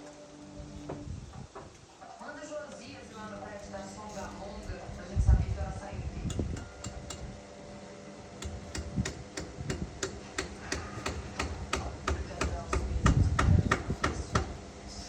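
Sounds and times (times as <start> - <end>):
faint steady hum: 0.0 - 15.0
washing machine rumbling: 2.9 - 7.5, 8.2 - 14.8.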